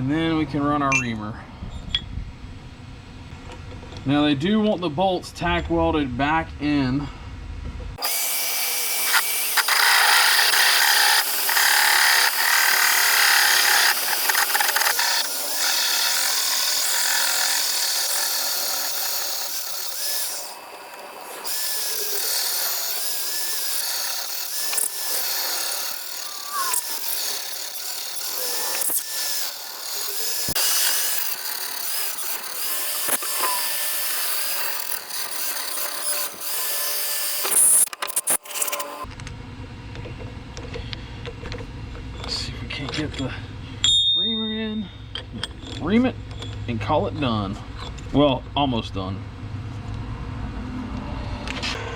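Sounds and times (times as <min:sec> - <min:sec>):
drill bit squealing: 0:08.0 - 0:39.0
magnetic drill boring through steel: 0:08.0 - 0:39.1.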